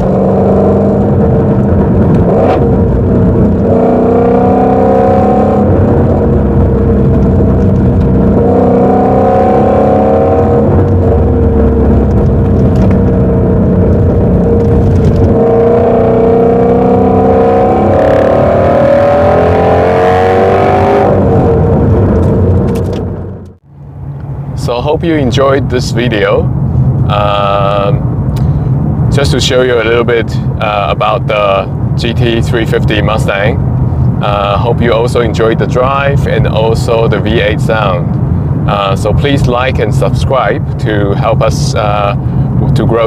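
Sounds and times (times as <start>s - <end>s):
car engine accelerating: 0.0s - 25.4s.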